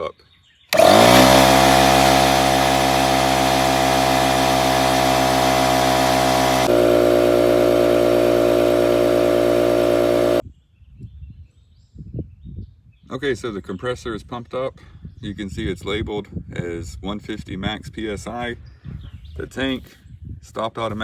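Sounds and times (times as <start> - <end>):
air compressor running: 0.7 - 10.4.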